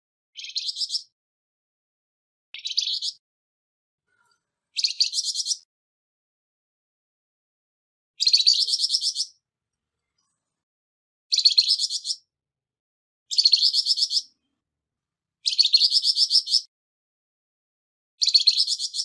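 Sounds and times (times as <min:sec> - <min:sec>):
bird singing harsh call: 0:00.4 - 0:01.1, 0:02.6 - 0:03.2, 0:04.1 - 0:05.7, 0:08.2 - 0:09.4, 0:11.3 - 0:12.3, 0:13.3 - 0:14.4, 0:15.4 - 0:16.7, 0:18.2 - 0:19.0.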